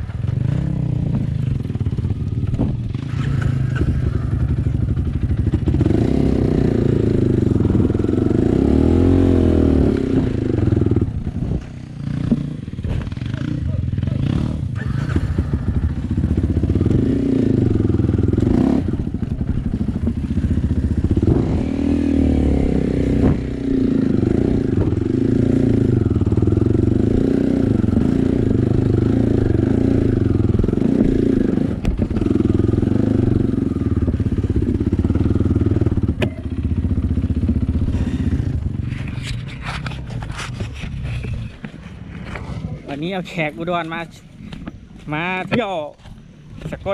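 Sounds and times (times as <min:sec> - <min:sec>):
clatter over rough ground: 0:00.0 - 0:06.0, 0:09.9 - 0:21.7, 0:27.7 - 0:46.9
dirt bike engine revving: 0:00.0 - 0:39.3.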